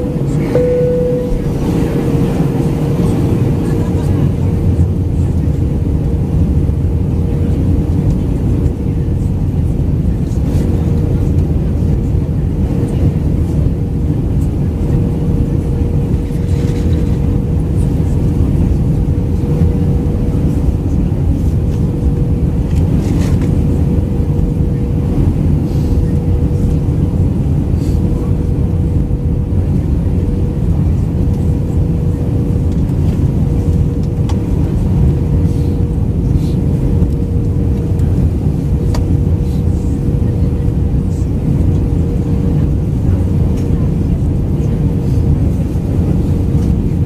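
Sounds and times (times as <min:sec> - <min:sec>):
steady hum: 0:00.0 - 0:10.4
airliner cabin roar: 0:00.0 - 0:47.0.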